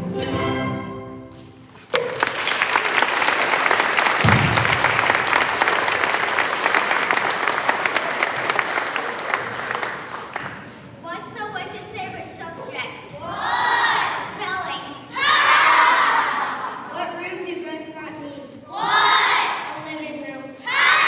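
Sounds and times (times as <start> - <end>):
audience applauding: 1.8 - 10.8.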